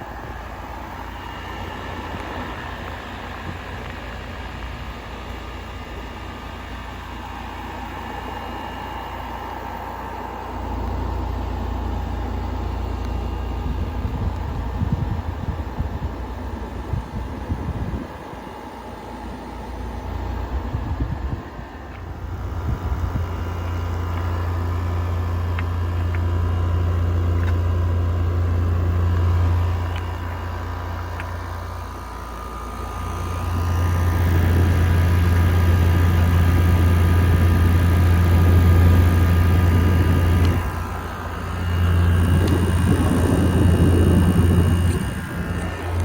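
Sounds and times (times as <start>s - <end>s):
air conditioner compressor hum: 0.0s - 46.0s
air conditioner fan noise: 0.0s - 46.0s
faint whine: 19.0s - 46.0s.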